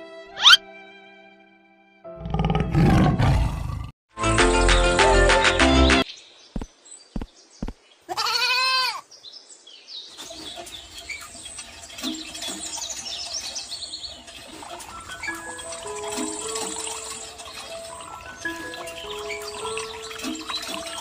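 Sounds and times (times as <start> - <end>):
goat bleating: 8.1 - 9.0
faint music: 10.6 - 21.0.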